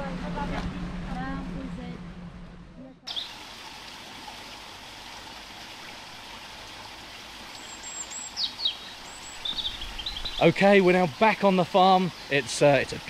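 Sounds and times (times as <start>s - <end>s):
small birds chirping: 3.1s - 3.4s, 7.4s - 13.0s.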